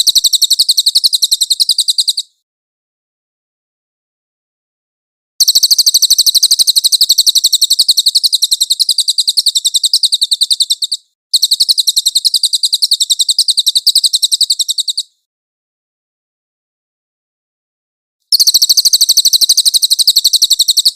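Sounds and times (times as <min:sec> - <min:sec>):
songbird rapid trill: 0:00.0 - 0:02.4, 0:05.4 - 0:15.2, 0:18.3 - 0:20.9.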